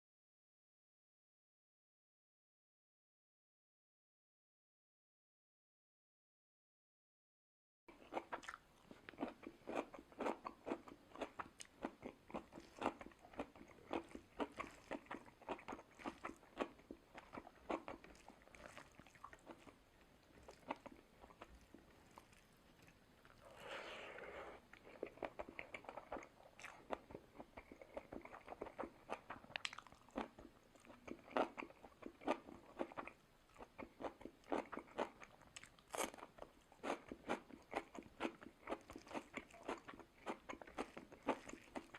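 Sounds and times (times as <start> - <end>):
chewing with crunches: 7.9 - 23.8, 24.6 - 41.9.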